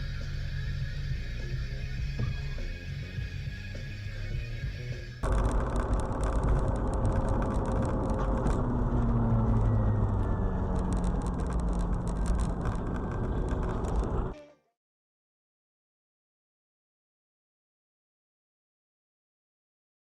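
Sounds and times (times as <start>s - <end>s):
car engine rumble: 5.2s - 14.3s
road noise: 5.2s - 14.4s.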